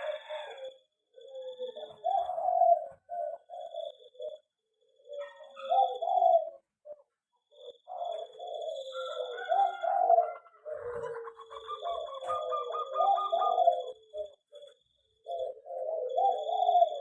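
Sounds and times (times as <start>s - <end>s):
doves cooing: 0.0s - 17.0s.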